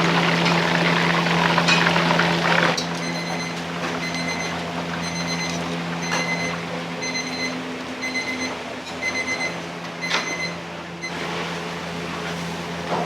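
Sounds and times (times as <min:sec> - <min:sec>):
low kitchen hum: 0:02.8 - 0:13.0.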